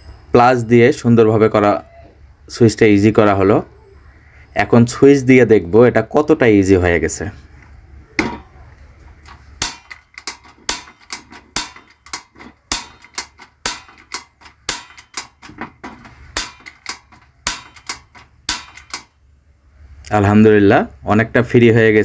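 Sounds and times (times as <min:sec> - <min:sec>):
gas stove ignition knob clicking: 0:09.3 - 0:19.1.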